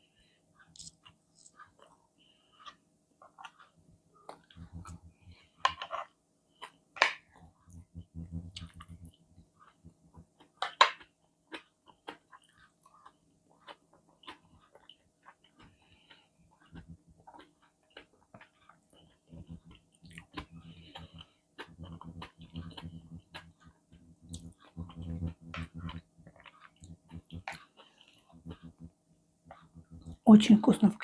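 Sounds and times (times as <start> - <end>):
chewing food: 0.6 - 30.2
sharp mouth clicks: 19.3 - 27.7.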